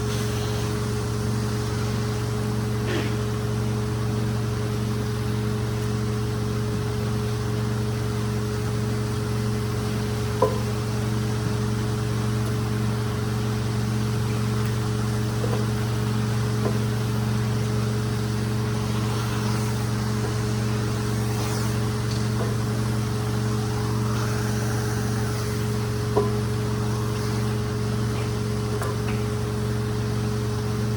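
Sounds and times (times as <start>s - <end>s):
cleaning machine motor hum: 0.0s - 30.9s.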